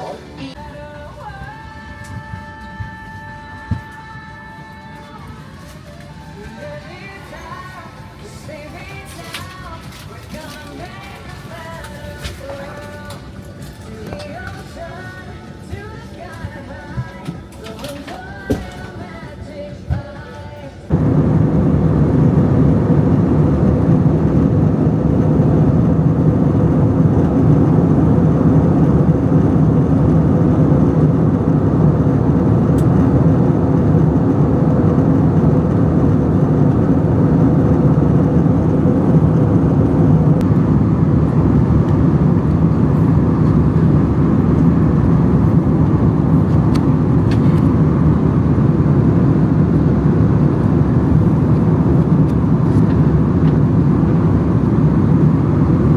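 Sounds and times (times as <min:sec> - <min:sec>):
vehicle engine drone and rushing air: 0:20.9 - 0:55.9.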